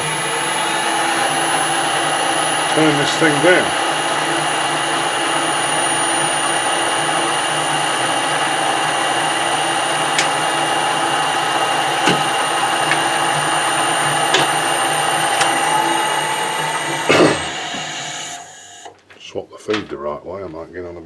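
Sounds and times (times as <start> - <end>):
metal lathe whining: 0.0 - 18.9.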